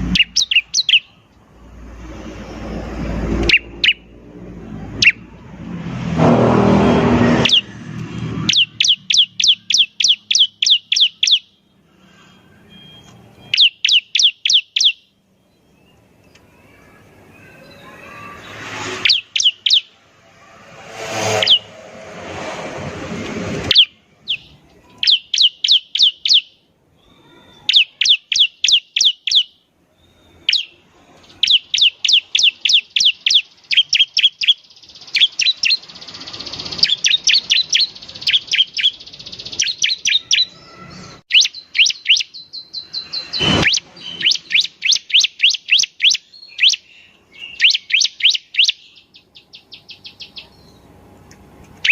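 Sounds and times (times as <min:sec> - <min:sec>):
bird chirping rapid high notes: 0:00.0 - 0:01.2, 0:03.2 - 0:04.2, 0:04.9 - 0:11.8, 0:12.4 - 0:22.4, 0:23.6 - 0:51.0
rushing noise: 0:01.5 - 0:08.7, 0:17.8 - 0:24.2.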